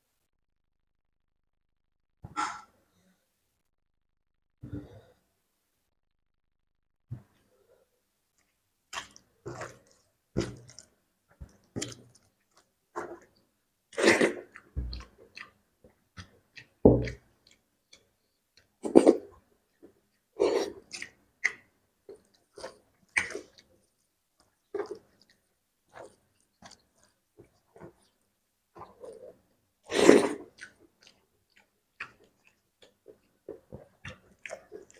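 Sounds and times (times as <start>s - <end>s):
chewing and mouth smacking: 8.9s - 28.2s, 28.8s - 34.9s.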